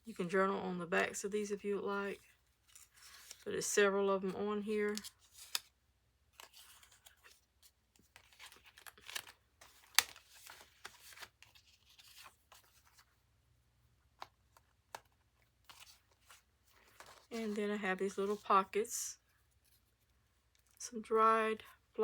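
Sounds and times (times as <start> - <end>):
paper rustling: 2.6 - 3.5, 4.8 - 13.2, 14.2 - 18.7.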